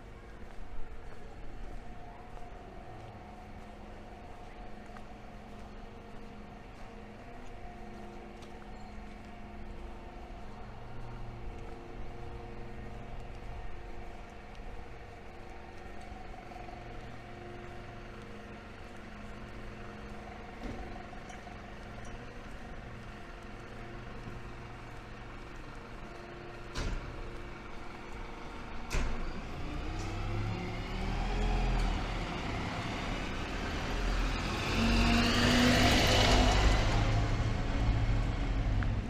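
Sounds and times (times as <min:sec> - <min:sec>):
vehicle engine revving: 0:29.5 - 0:39.0.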